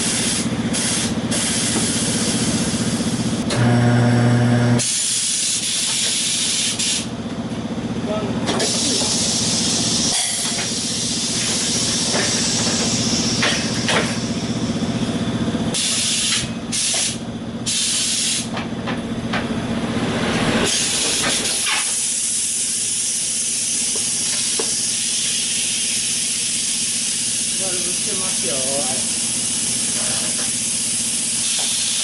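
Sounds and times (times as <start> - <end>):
compressed air blasts: 0.0 - 3.4, 4.8 - 7.1, 8.5 - 14.7, 15.7 - 18.5, 20.6 - 32.0
motor humming: 3.4 - 4.8
steady air hiss: 20.7 - 32.0.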